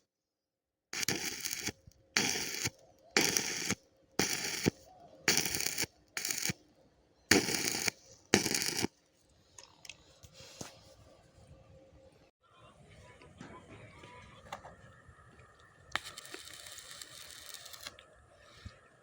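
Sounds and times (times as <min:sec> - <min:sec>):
crackling arc welding bursts: 0:01.0 - 0:06.6, 0:07.3 - 0:08.9, 0:16.0 - 0:17.9.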